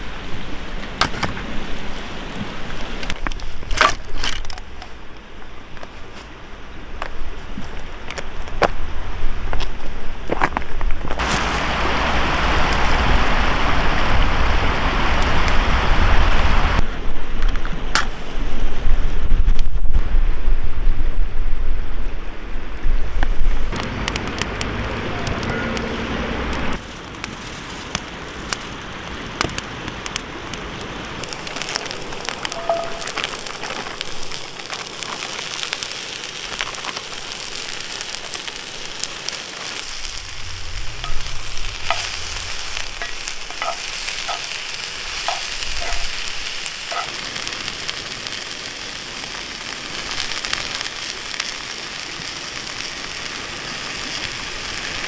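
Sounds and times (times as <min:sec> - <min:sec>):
campfire crackling: 0:00.0 - 0:20.0, 0:21.3 - 0:55.0
wind rumbling on microphone: 0:00.0 - 0:49.0
food sizzling in a skillet: 0:31.2 - 0:55.0.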